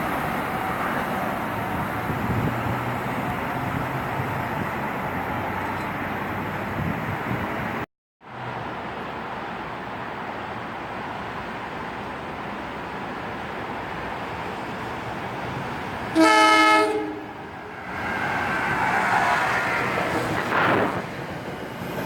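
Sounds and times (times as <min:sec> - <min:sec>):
locomotive horn blast: 0:16.1 - 0:17.5.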